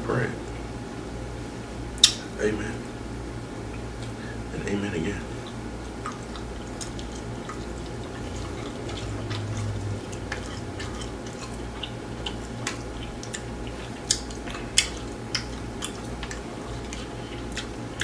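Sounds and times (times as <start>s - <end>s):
chewing with wet mouth clicks: 2.0s - 2.3s, 5.4s - 18.0s.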